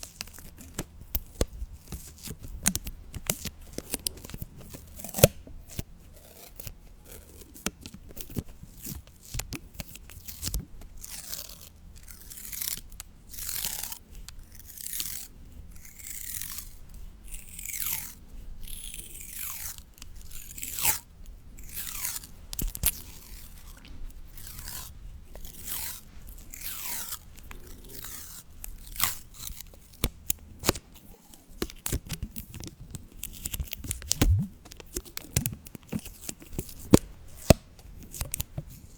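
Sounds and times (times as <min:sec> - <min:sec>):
tearing swishes: 0:33.9 - 0:34.6.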